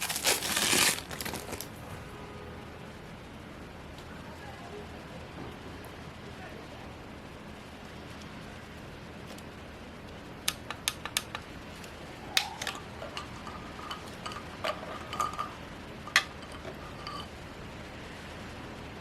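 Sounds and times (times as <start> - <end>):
plastic objects clicking: 10.5 - 15.5.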